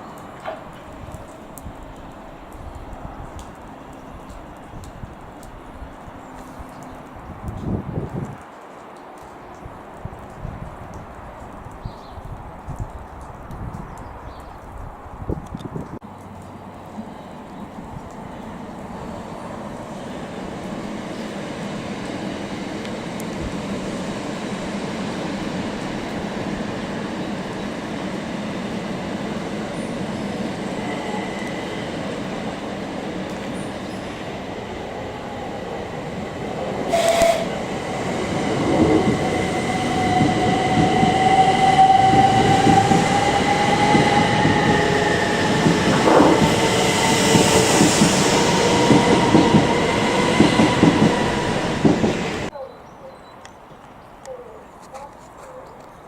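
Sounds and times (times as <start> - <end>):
train wheel and running noise: 17.7 - 52.5.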